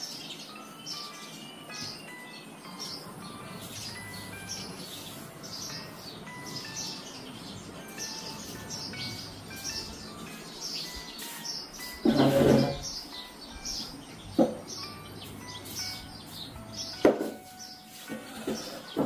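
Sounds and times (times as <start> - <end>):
light background music: 0.0 - 19.0
small birds chirping: 0.0 - 19.0
sharp knocks: 14.4 - 14.7, 17.0 - 17.4.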